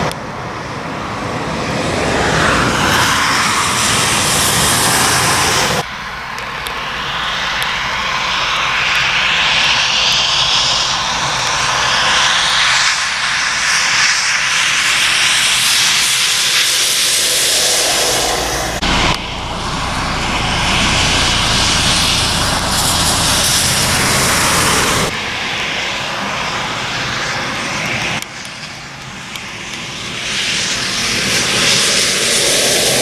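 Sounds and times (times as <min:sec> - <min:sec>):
truck engine noise: 0:00.8 - 0:11.4, 0:16.9 - 0:28.2
truck tyres hissing on wet road: 0:01.1 - 0:33.0.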